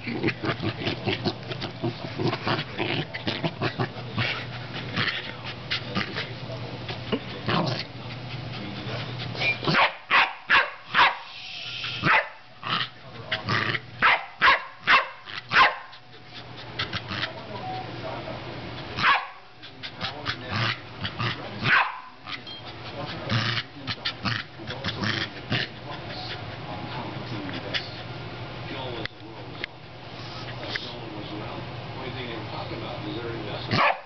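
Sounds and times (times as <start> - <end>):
electric air pump humming: 1.2 - 12.2
dog barking and yipping: 9.7 - 11.3, 12.0 - 12.4, 14.0 - 15.9, 19.0 - 19.4, 21.7 - 22.2, 33.8 - 34.0.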